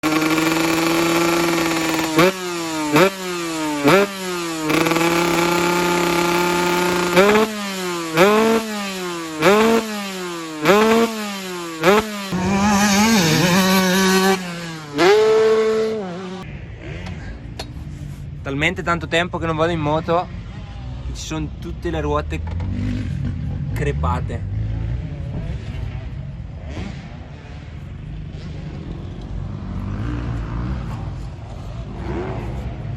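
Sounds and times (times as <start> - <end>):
two-stroke engine revving: 0.0 - 17.3.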